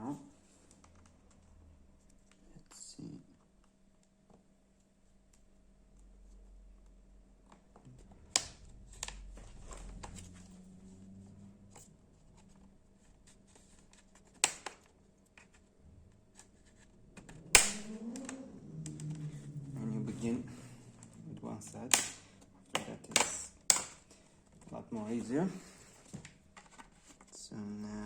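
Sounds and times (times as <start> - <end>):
plastic clips snapping: 14.4 - 14.9, 17.2 - 19.0, 21.9 - 24.1.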